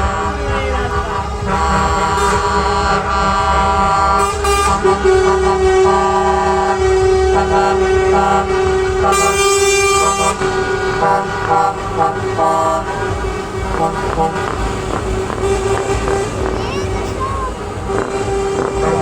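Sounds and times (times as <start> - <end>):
truck air horns: 0.0 - 19.0
truck engines rumbling: 0.0 - 19.0.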